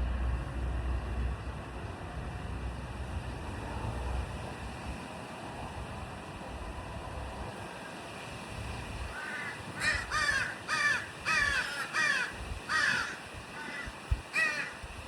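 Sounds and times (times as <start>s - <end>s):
crow cawing: 9.1s - 14.8s.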